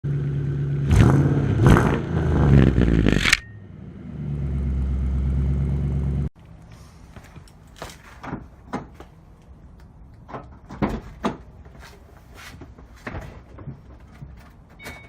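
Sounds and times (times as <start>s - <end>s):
deep exhaust drone: 0.0s - 6.3s
car engine revving: 0.1s - 6.3s.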